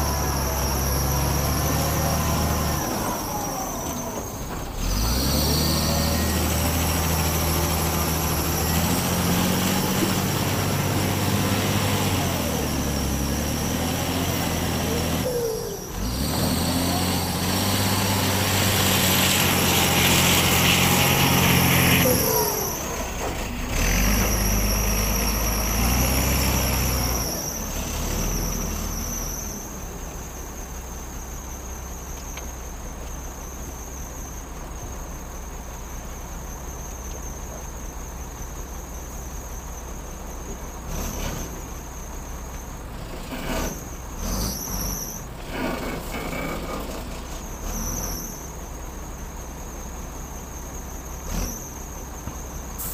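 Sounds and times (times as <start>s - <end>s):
diesel machinery engines revving: 0.0s - 52.9s.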